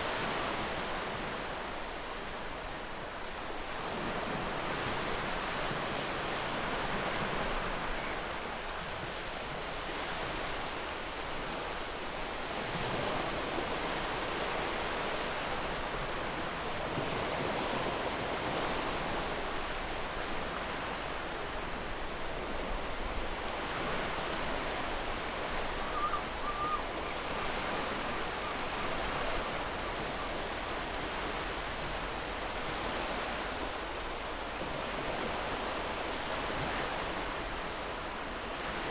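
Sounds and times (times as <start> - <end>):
surf washing: 0.0 - 38.9
faint wavering call: 25.7 - 26.9.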